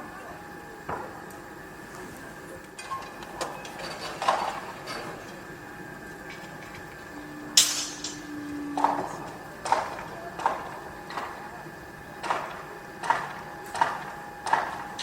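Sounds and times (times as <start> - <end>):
steady machine hum: 0.0 - 15.0
steady low tone: 6.9 - 12.1
sharp metal clanks and knocks: 7.6 - 11.3.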